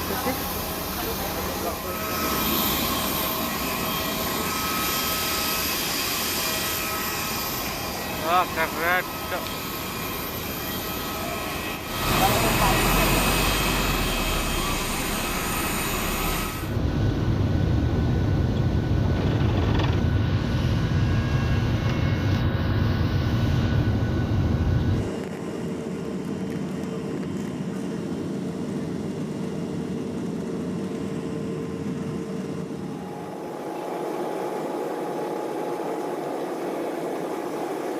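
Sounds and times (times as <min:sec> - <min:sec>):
jet airliner noise: 0:00.0 - 0:37.9.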